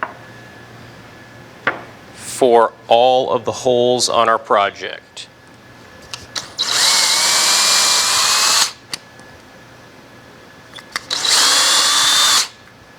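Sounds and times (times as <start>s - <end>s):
power drill drilling wood: 6.4s - 8.8s, 10.9s - 12.6s.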